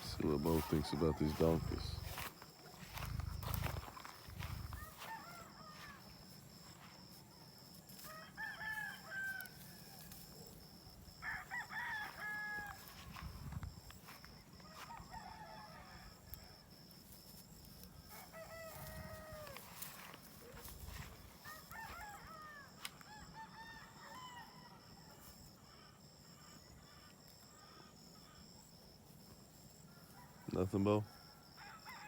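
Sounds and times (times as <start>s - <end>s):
chicken calls: 0.0s - 2.2s
rooster crowing: 0.1s - 6.2s, 8.0s - 10.2s, 11.1s - 13.4s, 14.6s - 16.6s, 18.1s - 20.2s, 20.9s - 25.1s, 29.9s - 32.0s.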